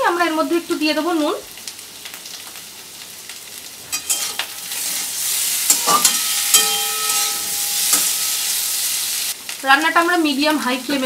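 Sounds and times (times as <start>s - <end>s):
potatoes sizzling in oil: 0.0s - 11.0s
metal spatula scraping a pan: 3.9s - 9.4s.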